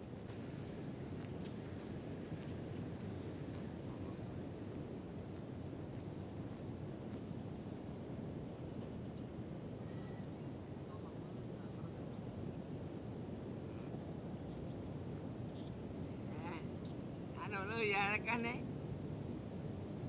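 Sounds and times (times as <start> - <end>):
birds chirping: 0.0 - 18.7
low outdoor rumble: 0.0 - 20.0.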